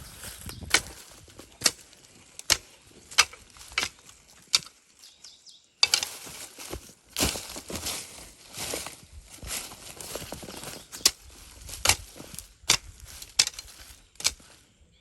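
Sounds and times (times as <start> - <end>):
hoe chopping into soil: 0.6 - 1.8, 2.4 - 4.7, 5.8 - 7.9, 10.4 - 14.6.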